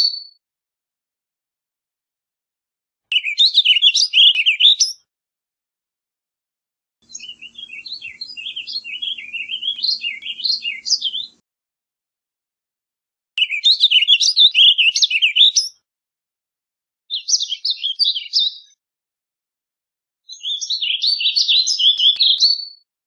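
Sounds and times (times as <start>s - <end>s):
bird warbling song: 3.1s - 5.0s, 7.0s - 11.4s, 13.4s - 15.7s, 17.1s - 18.7s, 20.3s - 22.8s.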